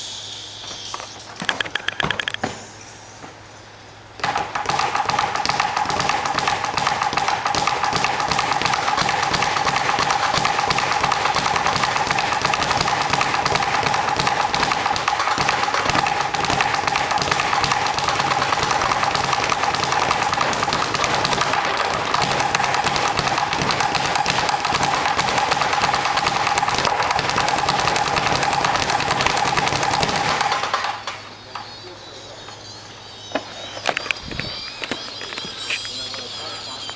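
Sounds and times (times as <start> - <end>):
steady high hum: 0.0 - 36.9
speed bag rattling: 4.2 - 31.2, 33.8 - 36.9.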